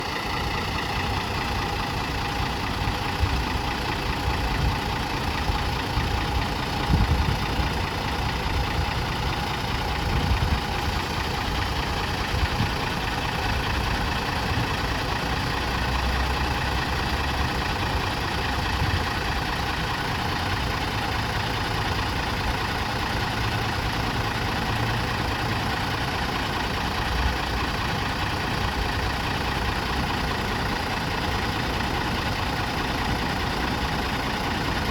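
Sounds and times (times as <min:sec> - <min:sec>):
bus engine idling: 0:00.0 - 0:34.9.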